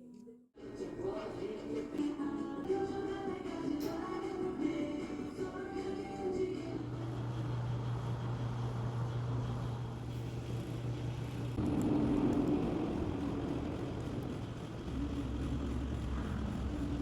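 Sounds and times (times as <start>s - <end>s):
vehicle engine drone: 6.6s - 17.0s.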